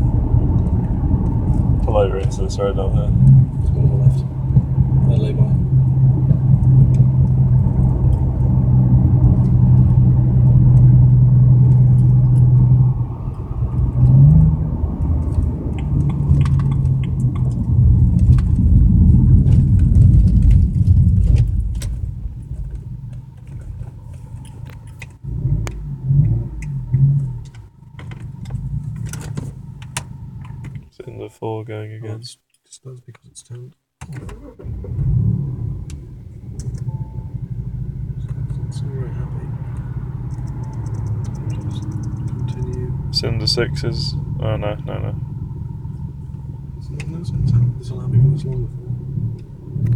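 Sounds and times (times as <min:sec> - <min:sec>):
car engine pulling and idling: 0:00.0 - 0:32.2, 0:33.1 - 0:49.9.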